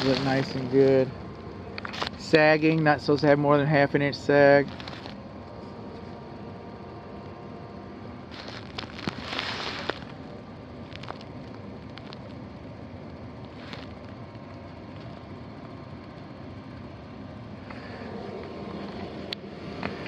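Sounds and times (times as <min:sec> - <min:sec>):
rustling and crackling: 0:00.0 - 0:01.1, 0:01.8 - 0:02.9, 0:04.6 - 0:06.2, 0:08.3 - 0:12.4, 0:13.4 - 0:16.2.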